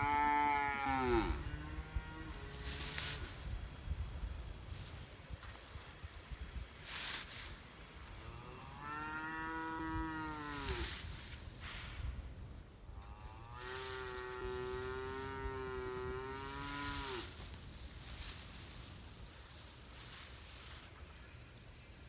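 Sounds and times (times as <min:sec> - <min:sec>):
cattle mooing: 0:00.0 - 0:02.6, 0:13.2 - 0:17.3.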